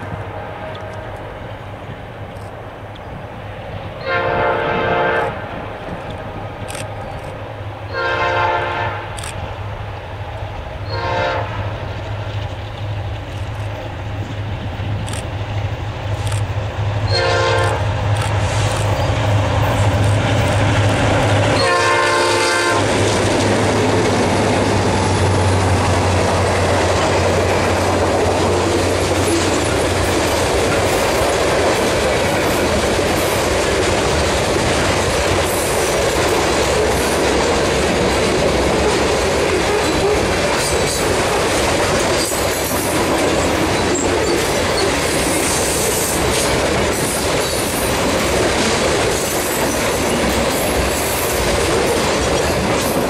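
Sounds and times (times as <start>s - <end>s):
locomotive engines droning: 0.0s - 53.0s
train wheels rolling on rails: 0.0s - 53.0s
train horn blasts: 4.0s - 5.6s, 7.9s - 9.2s, 10.8s - 11.8s, 17.1s - 17.9s, 21.5s - 22.9s.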